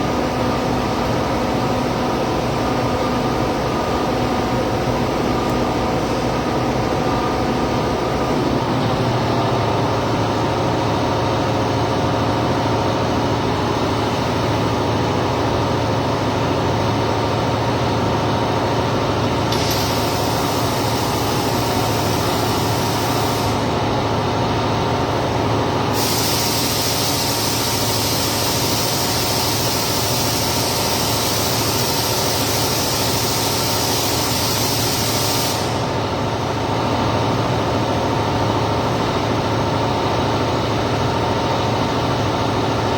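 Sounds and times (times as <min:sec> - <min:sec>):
shop hum: 0:00.0 - 0:42.9
welding arc hissing: 0:19.4 - 0:23.8, 0:25.9 - 0:36.1.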